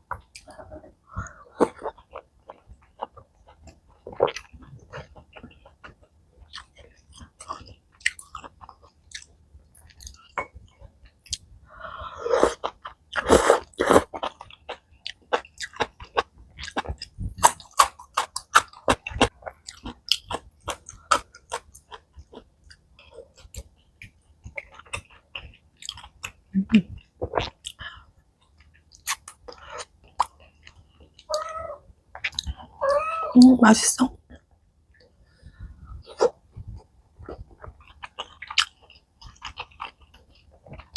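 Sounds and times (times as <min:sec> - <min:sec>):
person chewing and smacking: 0:01.2 - 0:11.6, 0:12.4 - 0:31.5, 0:32.1 - 0:32.8, 0:34.4 - 0:40.9.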